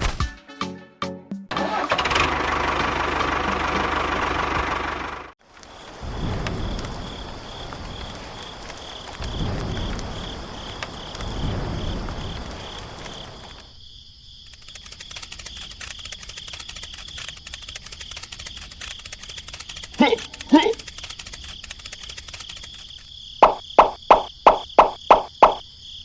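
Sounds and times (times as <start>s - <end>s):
insect chirping: 5.4s - 26.0s
fast fine ticking: 14.5s - 25.6s.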